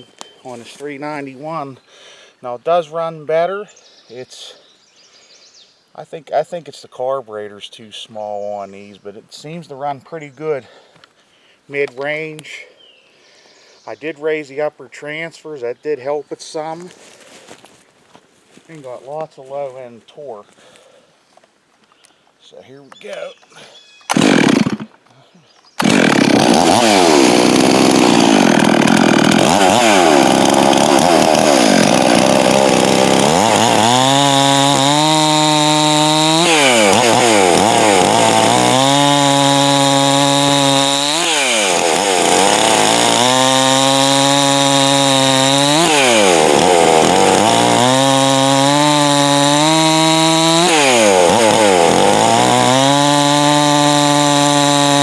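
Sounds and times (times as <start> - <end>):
chainsaw cutting wood: 24.1 - 25.0, 25.8 - 55.0.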